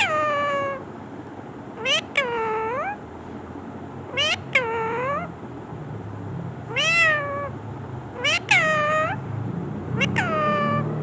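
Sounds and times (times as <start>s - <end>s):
parrot mimicking cat meow: 0.0s - 0.9s, 1.8s - 3.0s, 4.1s - 5.3s, 6.7s - 7.6s, 8.2s - 9.2s, 9.9s - 11.0s.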